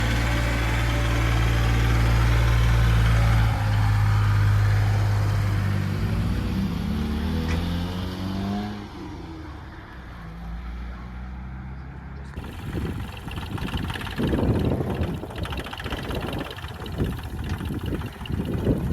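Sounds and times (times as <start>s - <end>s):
tractor engine running: 0.0s - 5.8s, 12.4s - 18.9s.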